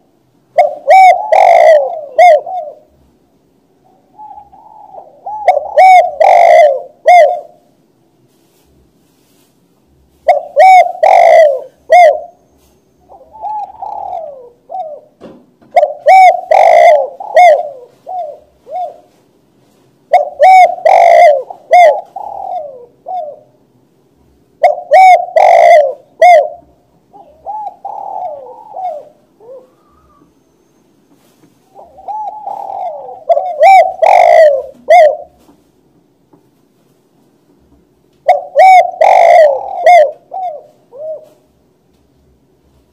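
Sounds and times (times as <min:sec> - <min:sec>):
dove cooing: 0:00.0 - 0:03.0, 0:03.8 - 0:07.7, 0:10.2 - 0:19.2, 0:20.1 - 0:23.6, 0:24.6 - 0:30.6, 0:31.2 - 0:35.6, 0:38.2 - 0:41.6.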